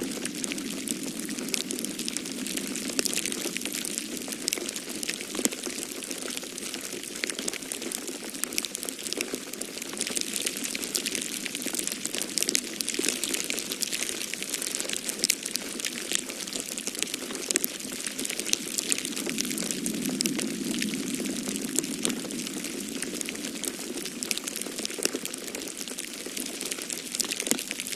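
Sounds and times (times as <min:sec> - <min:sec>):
storm wind rushing: 0:00.0 - 0:05.1, 0:18.3 - 0:24.4
wood fire crackling: 0:00.0 - 0:27.9.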